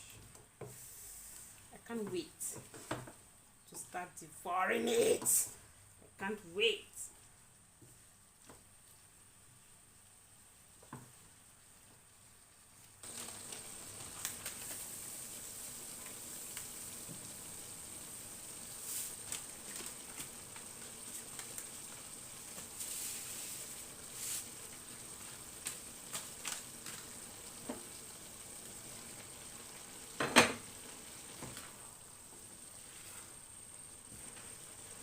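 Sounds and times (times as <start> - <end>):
stir-fry sizzling in a pan: 0.0 - 35.0
crackles and pops: 7.1 - 35.0.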